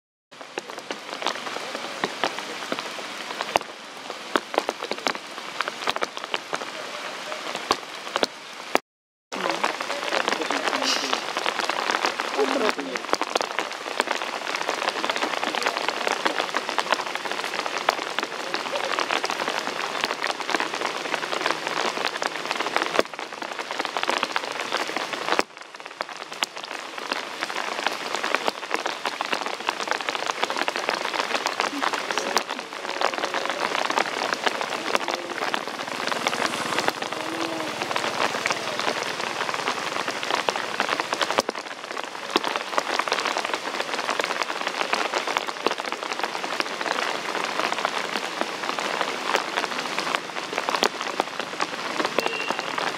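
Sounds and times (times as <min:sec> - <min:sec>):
rain pattering: 0:00.3 - 0:52.9.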